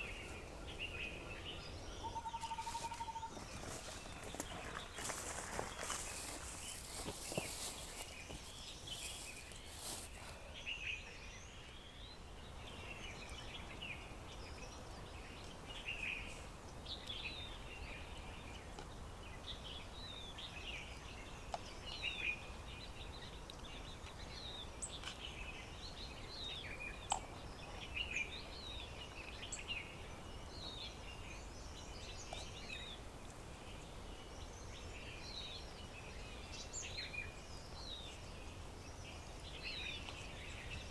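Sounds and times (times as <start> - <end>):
birds chirping: 0.0 - 40.9
rustling: 2.6 - 10.4.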